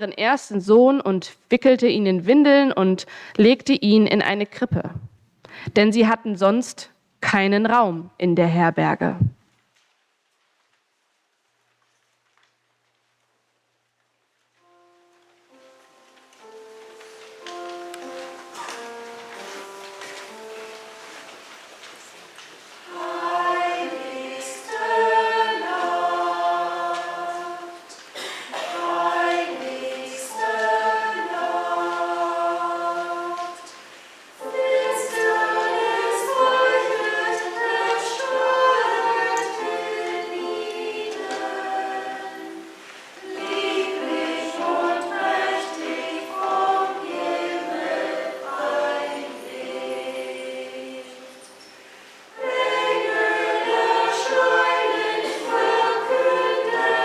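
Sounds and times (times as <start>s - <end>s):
church choir singing: 14.7s - 57.0s.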